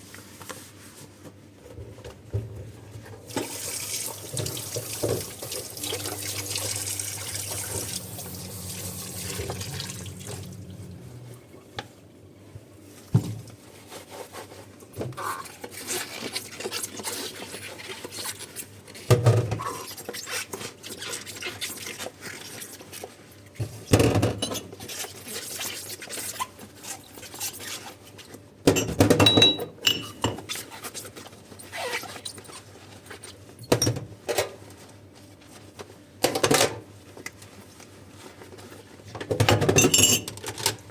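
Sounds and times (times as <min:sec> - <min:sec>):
tap running into sink: 0:03.3 - 0:11.4
small water sounds: 0:03.6 - 0:11.7
dishes clattering: 0:28.7 - 0:30.4, 0:39.4 - 0:40.7.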